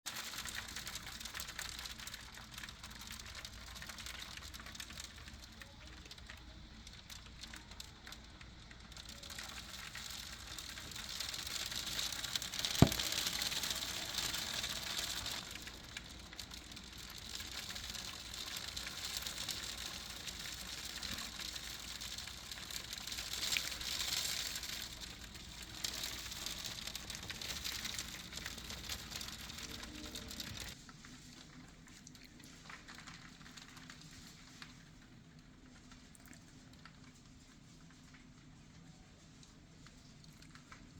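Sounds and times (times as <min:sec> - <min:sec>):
hail pattering on surfaces: 0:00.1 - 0:30.8.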